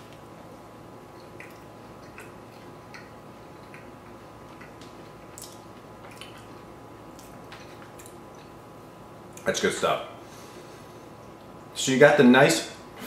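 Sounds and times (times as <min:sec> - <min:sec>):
faint steady hum: 0:00.0 - 0:13.0
person chewing with mouth closed: 0:01.1 - 0:08.6.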